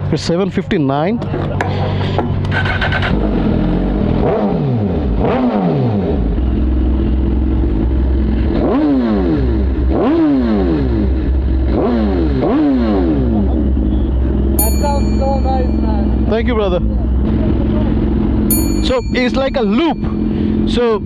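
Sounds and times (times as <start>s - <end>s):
motorcycle engine idling and revving: 1.2s - 21.0s.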